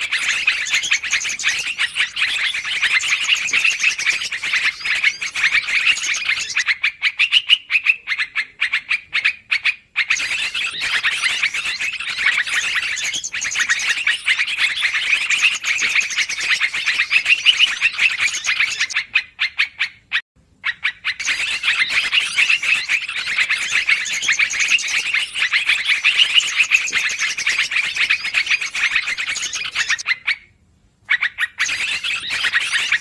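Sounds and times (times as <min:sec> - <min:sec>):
bulbuls chattering: 0:00.0 - 0:06.6, 0:10.1 - 0:19.0, 0:21.2 - 0:30.0.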